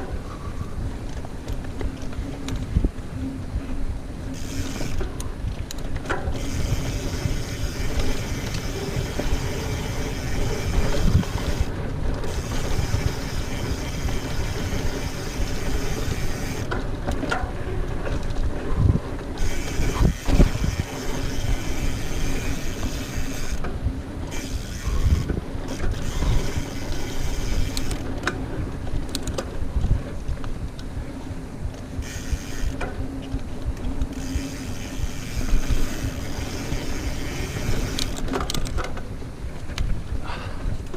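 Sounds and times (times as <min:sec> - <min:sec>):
bike tyres rolling on dirt: 0:00.0 - 0:40.9
bike chain rattling and clicking: 0:03.7 - 0:29.6, 0:31.8 - 0:39.8.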